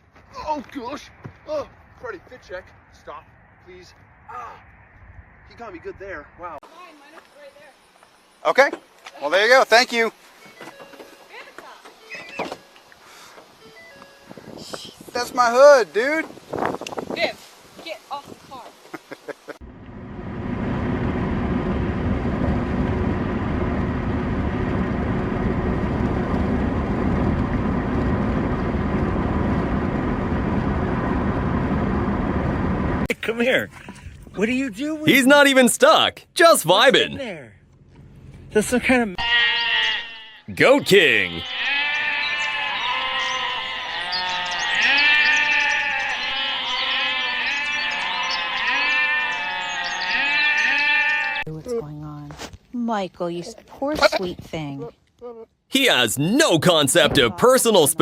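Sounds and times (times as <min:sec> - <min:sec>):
mechanical rumble: 0:19.6 - 0:33.1
goats bleating: 0:39.2 - 0:51.5.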